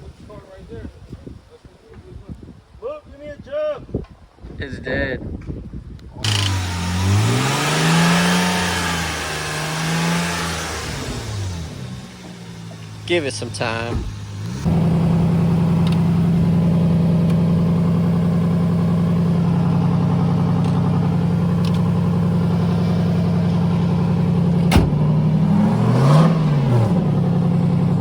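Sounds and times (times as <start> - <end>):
car engine idling: 6.3 - 28.0.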